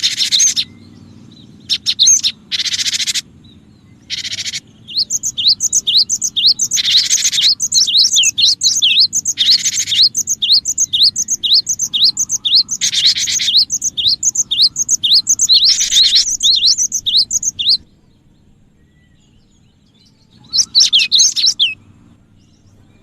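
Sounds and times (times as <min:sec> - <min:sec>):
bird buzzy churring calls: 0:00.0 - 0:18.7, 0:20.3 - 0:22.0
faint low hum: 0:00.0 - 0:23.0
sharp slurred whistled notes: 0:04.1 - 0:17.8.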